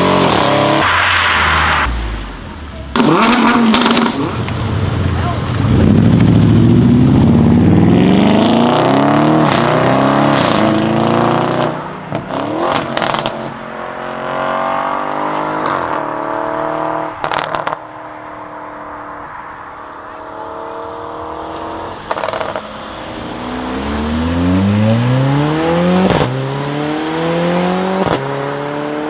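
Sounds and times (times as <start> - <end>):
car engine revving: 0.0 - 17.8, 18.4 - 29.0
exhaust cracks: 0.2 - 7.8.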